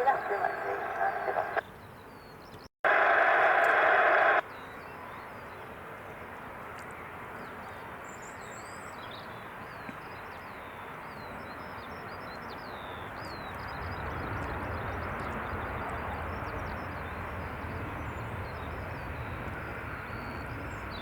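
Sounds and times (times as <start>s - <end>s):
distant airport rumble: 0.0s - 1.6s, 11.8s - 21.0s
loud radio static: 0.0s - 1.6s, 2.9s - 4.4s
small birds chirping: 6.8s - 21.0s.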